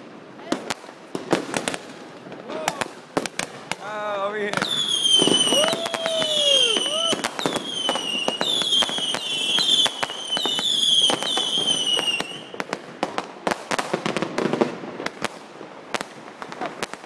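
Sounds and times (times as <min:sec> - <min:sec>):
firework cracks and bangs: 0:00.0 - 0:17.0
firework whistles falling in pitch: 0:04.6 - 0:12.6.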